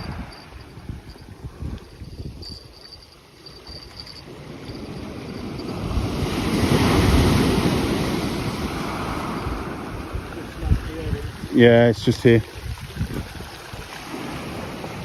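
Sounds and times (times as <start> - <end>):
wind buffeting microphone: 0.0 - 15.0
waves breaking on beach: 3.2 - 15.0.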